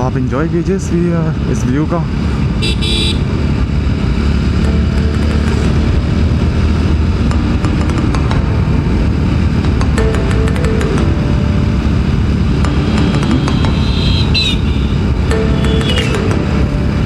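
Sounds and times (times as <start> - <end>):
motorcycle engine cruising: 0.0 - 17.0
brief high-pitched tone: 12.7 - 16.3.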